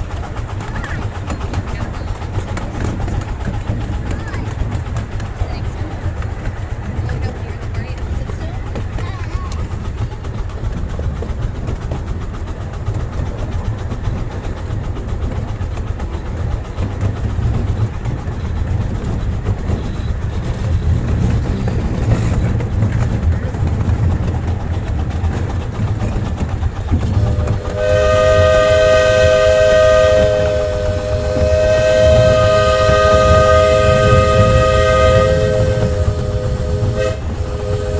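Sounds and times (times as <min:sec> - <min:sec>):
miniature steam train running: 0:00.0 - 0:37.9
steam locomotive whistle: 0:27.1 - 0:37.9.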